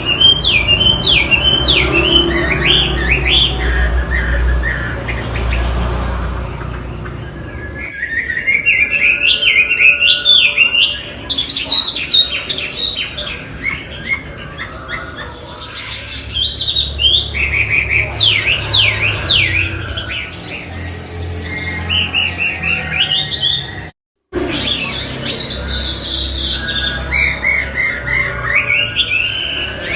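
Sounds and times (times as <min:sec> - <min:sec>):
bird singing whistled notes: 0:07.2 - 0:23.9.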